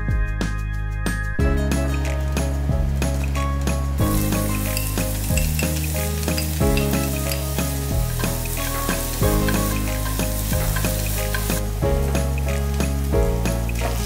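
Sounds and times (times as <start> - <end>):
shallots sizzling in hot oil: 2.4 - 14.0
chopsticks stirring in a wok: 4.0 - 14.0.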